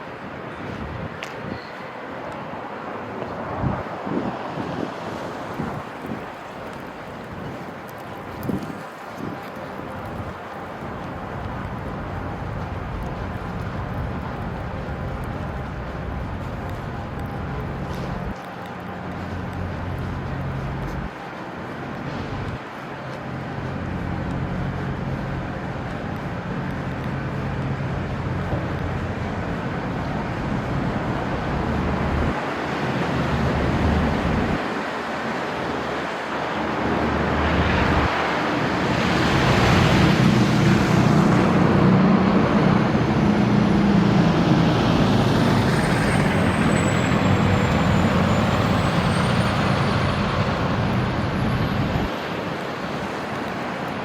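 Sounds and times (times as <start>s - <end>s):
street traffic: 0.0s - 54.0s
heavy vehicle engine running low: 35.5s - 53.4s.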